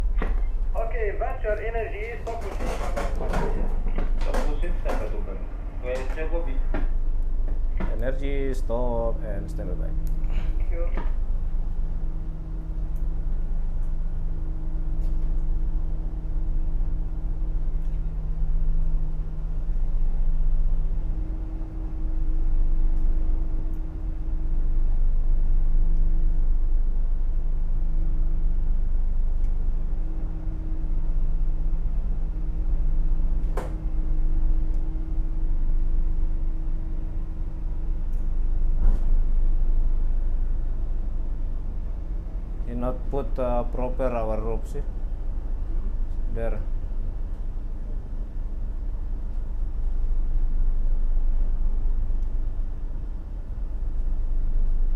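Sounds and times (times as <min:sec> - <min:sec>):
ship diesel engines rumbling: 0:00.0 - 0:11.2.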